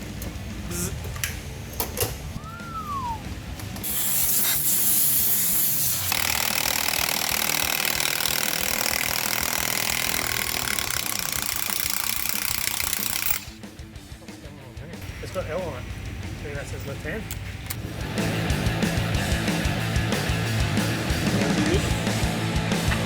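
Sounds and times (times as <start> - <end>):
falling whistle-like tone: 2.4 - 3.4
welding arc crackling and hissing: 3.8 - 6.5.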